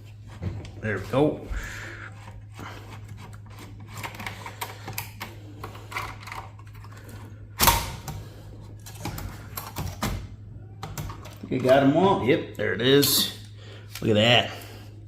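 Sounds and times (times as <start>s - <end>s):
hands handling server components: 2.1s - 7.4s, 8.0s - 12.3s.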